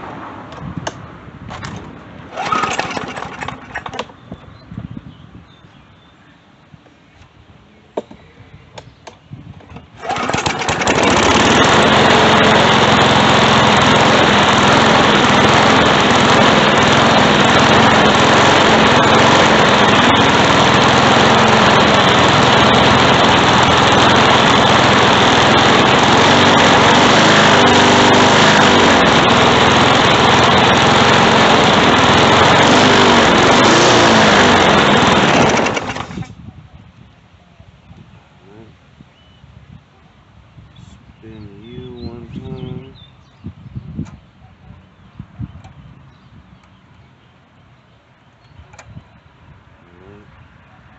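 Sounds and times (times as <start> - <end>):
lawn mower engine running: 1.5 - 4.3, 9.5 - 36.4.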